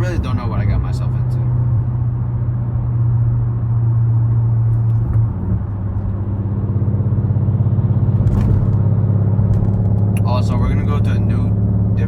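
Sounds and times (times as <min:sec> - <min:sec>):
car engine droning: 0:00.0 - 0:12.0.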